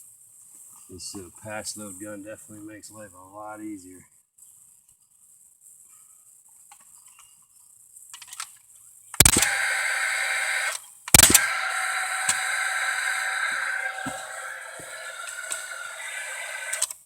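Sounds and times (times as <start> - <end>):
nail gun bang: 9.2 - 16.6
tool fan whirring: 9.2 - 16.9.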